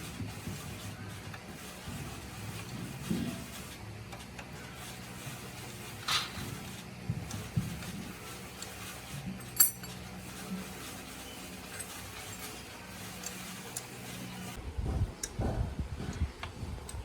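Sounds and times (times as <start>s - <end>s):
steady low hum: 0.0s - 17.0s
light metallic clinking: 9.4s - 10.0s.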